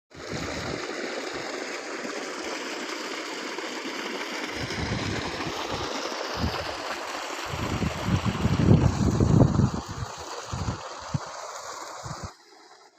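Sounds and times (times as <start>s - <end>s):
flowing stream rushing: 0.2s - 12.9s
wind buffeting microphone: 4.6s - 5.5s, 6.3s - 6.8s, 7.4s - 11.2s, 12.0s - 12.3s.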